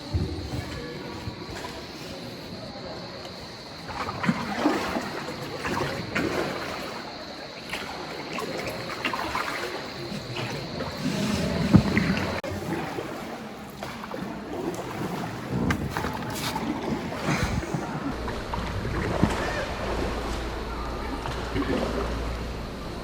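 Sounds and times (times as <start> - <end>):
boat knocks and thud: 0.0 - 1.8, 7.7 - 13.0, 13.7 - 22.4
oars splashing water: 0.0 - 23.0.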